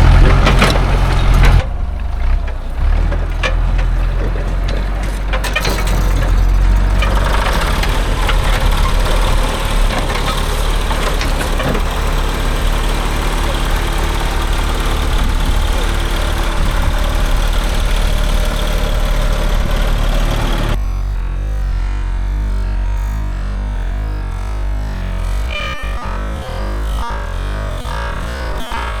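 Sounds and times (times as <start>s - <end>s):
diesel engine idling: 0.0s - 20.8s.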